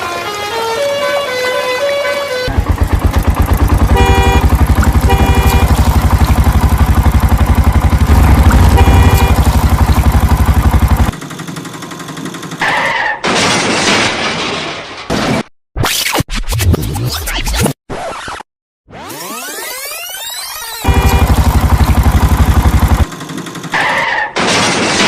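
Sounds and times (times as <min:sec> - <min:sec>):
cartoon vehicle engine chugging: 0:02.2 - 0:13.3, 0:19.1 - 0:24.4
short horn honks: 0:03.9 - 0:06.4, 0:08.1 - 0:10.0, 0:20.8 - 0:21.4.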